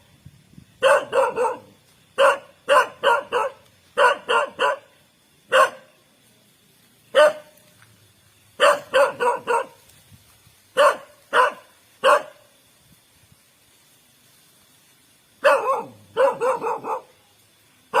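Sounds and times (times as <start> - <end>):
dog barking: 0.8 - 5.9, 7.1 - 7.6, 8.6 - 9.8, 10.8 - 12.5, 15.4 - 17.2.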